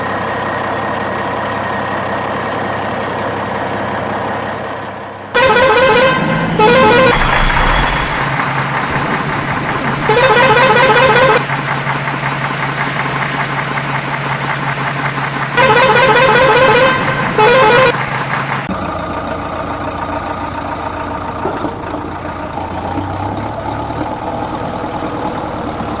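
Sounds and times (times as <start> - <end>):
toy electronic horn warbling: 5.4 - 8.3, 15.6 - 18.0
low electronic hum: 6.8 - 9.5.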